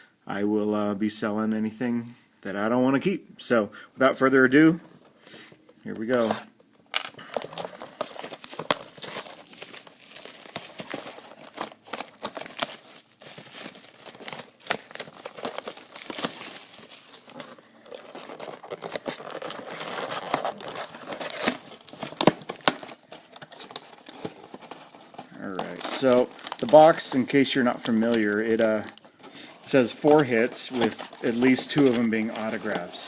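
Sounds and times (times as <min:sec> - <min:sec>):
plastic wrap crinkling and tearing: 0:07.1 - 0:33.0.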